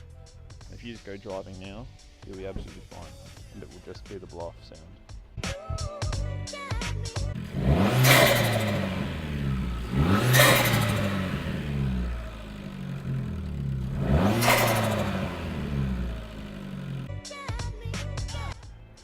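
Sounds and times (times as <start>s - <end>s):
car engine revving: 7.3s - 17.1s.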